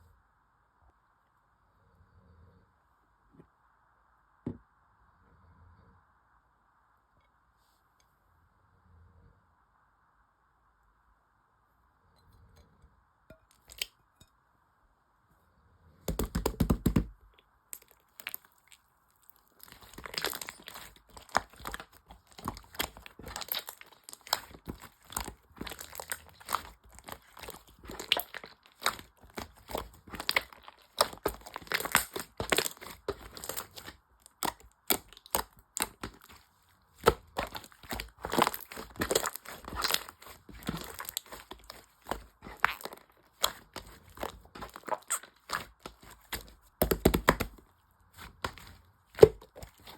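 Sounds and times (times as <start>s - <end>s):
crinkly material crumpled and torn: 17.8s - 49.9s.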